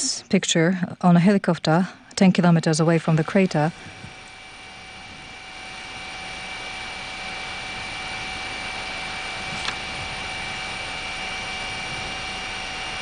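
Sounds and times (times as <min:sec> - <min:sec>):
steady whining tones: 0:00.0 - 0:13.0
helicopter engine and rotor drone: 0:01.7 - 0:13.0.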